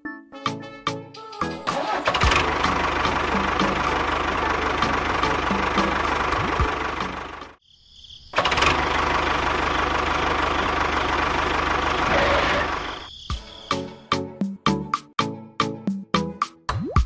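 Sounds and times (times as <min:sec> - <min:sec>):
engine running: 0:01.5 - 0:07.6, 0:08.4 - 0:13.1.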